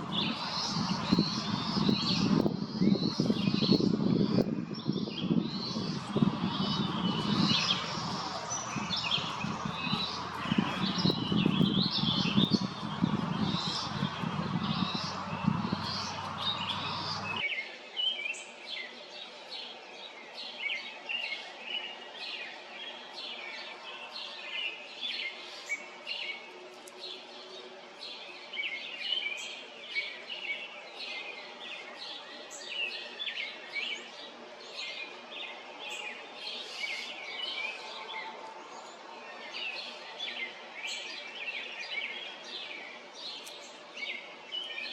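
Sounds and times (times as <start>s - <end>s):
low rushing noise: 0.0s - 4.6s, 5.2s - 17.4s
wild birds chirping and singing: 0.0s - 44.9s.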